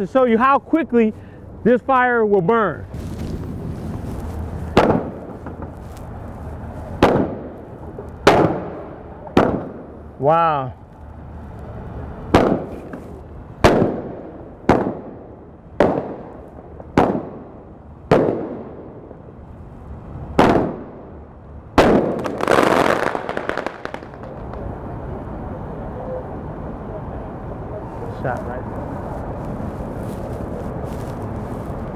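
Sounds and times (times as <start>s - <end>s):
firework bangs: 2.9s - 10.2s, 11.3s - 19.3s, 20.2s - 21.2s, 21.8s - 24.8s
firework crackling: 2.9s - 10.2s, 10.8s - 21.1s, 21.8s - 24.8s, 27.9s - 31.9s.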